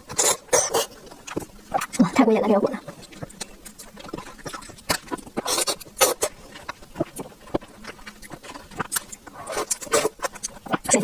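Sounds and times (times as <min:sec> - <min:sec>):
wet chewing and mouth smacking: 0:00.0 - 0:11.0.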